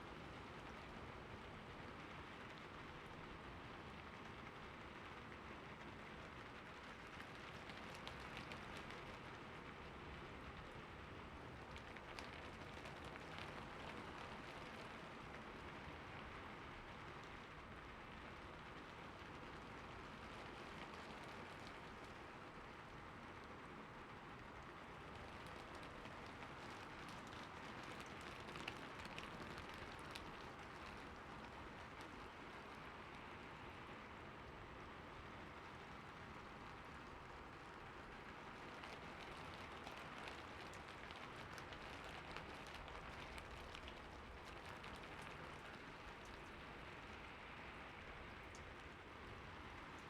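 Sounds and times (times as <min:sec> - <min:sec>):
light rain falling: 0:00.0 - 0:50.0
raindrops ticking: 0:24.4 - 0:33.2, 0:36.4 - 0:50.0.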